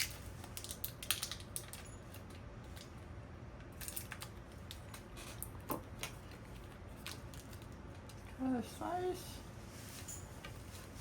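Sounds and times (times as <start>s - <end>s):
plastic packaging crinkling: 0.0s - 2.9s.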